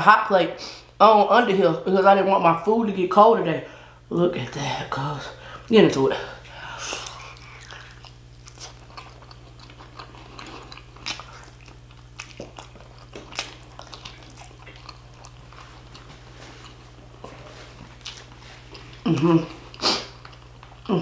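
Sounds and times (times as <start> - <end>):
faint low hum: 0.0 - 21.0
chewing: 6.9 - 21.0.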